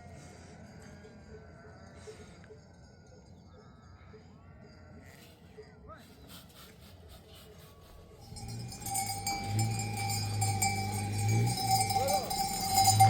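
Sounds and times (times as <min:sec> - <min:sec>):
livestock bells ringing: 0:08.2 - 0:13.0
low steady hum: 0:08.2 - 0:13.0.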